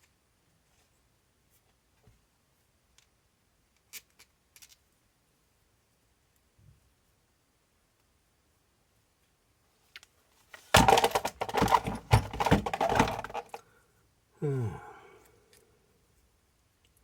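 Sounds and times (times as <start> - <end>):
metal tools clattering on workbench: 10.6 - 13.6.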